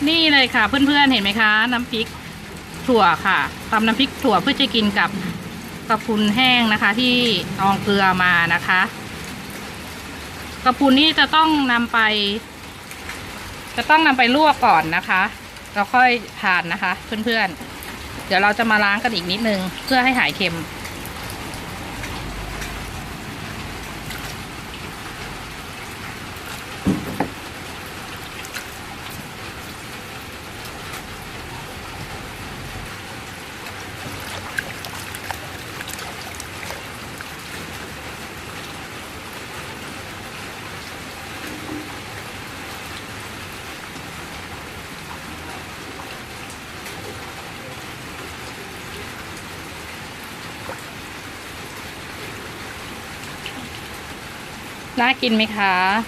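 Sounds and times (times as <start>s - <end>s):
steady rain falling: 0.0s - 56.0s
sharp knocks: 26.8s - 27.4s.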